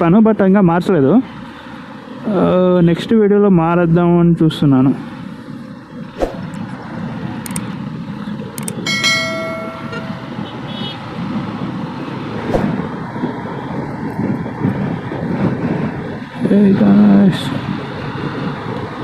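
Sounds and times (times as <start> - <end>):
road and traffic noise: 0.0 - 19.0
vehicle horn: 9.8 - 11.0.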